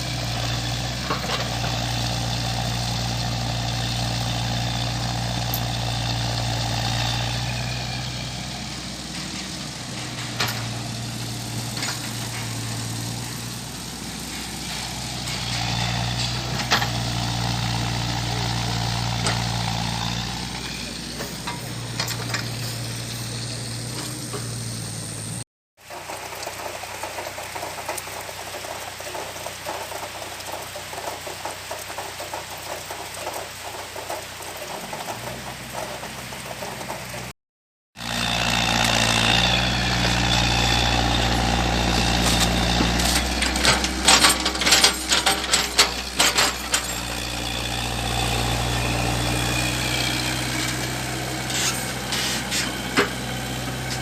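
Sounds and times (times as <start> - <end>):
excavator diesel engine running: 0.0 - 37.3, 38.0 - 54.0
metallic clanks and rattles: 4.4 - 24.8, 38.4 - 54.0.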